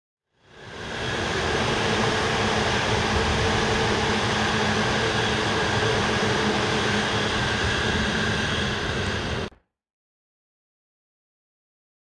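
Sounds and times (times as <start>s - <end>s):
steady train hum: 0.4s - 9.5s
train wheels rumbling on rail: 0.6s - 9.5s.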